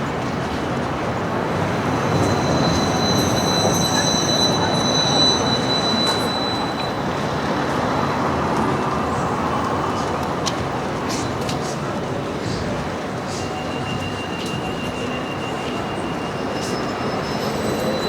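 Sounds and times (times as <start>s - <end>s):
city street noise: 0.0s - 18.0s
high metallic squeal: 1.7s - 7.2s, 13.4s - 18.0s.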